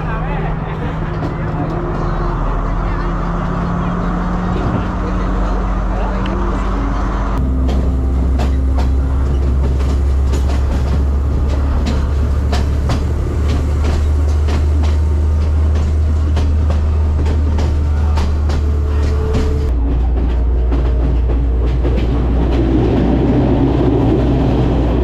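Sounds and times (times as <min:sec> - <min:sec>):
train rumbling on track: 0:00.0 - 0:25.0
wheels clicking over rail joints: 0:07.4 - 0:24.2.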